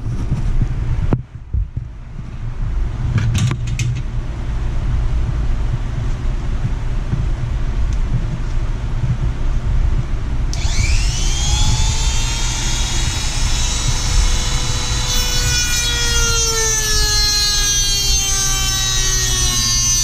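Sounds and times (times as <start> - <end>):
chainsaw engine at full throttle: 10.6 - 15.7.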